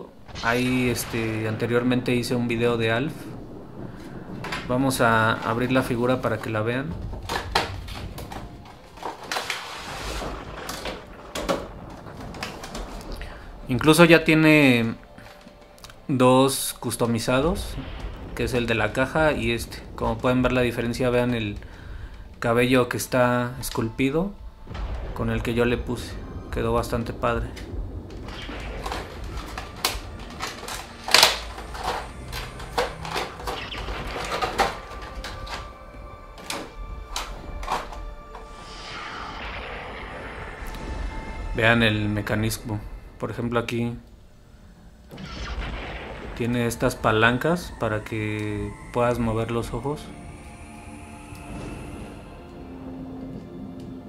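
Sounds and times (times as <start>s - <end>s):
sliding rustle: 3.8s - 13.1s
packaging clicks and knocks: 6.9s - 9.8s, 28.8s - 38.5s.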